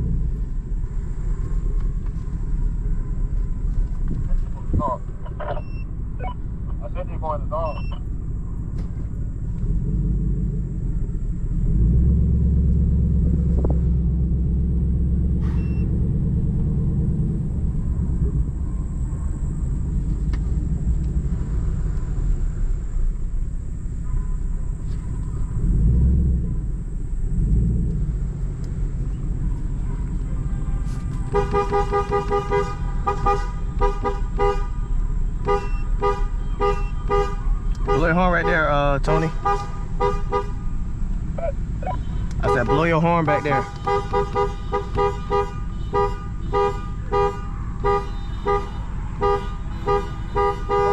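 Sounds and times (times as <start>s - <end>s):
truck engine rumbling: 0.0s - 50.9s
vehicle horn short blasts: 30.6s - 34.8s, 35.4s - 40.6s, 41.4s - 50.9s.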